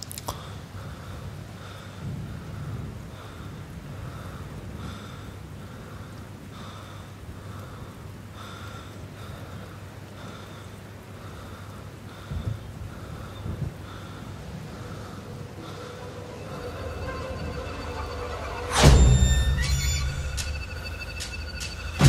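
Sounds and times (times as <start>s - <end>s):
rain-like hiss: 0.0s - 22.0s
low rumble: 13.5s - 22.0s
soft pulse: 14.2s - 22.0s.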